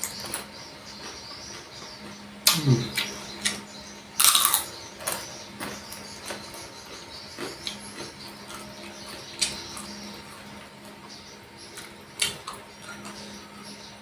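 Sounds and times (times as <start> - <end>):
person crunching a cracker: 4.2 - 4.7.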